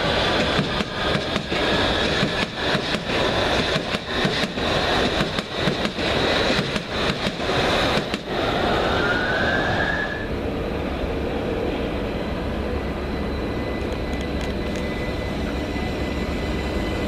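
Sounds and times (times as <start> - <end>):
train wheels clicking over rails: 0.0 - 8.4
electric train rumbling: 0.0 - 17.0.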